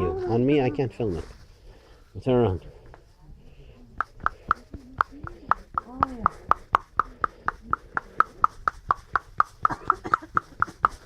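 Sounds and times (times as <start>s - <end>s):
handheld massager ticking: 4.0s - 11.0s.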